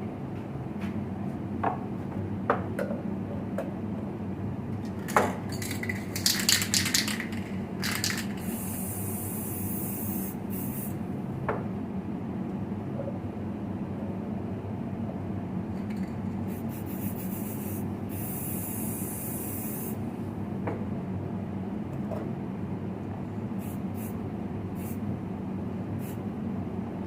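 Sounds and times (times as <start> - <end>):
low workshop hum: 0.0 - 27.0
spray can hissing: 5.0 - 11.0, 16.5 - 20.0, 23.6 - 24.2, 24.8 - 25.0.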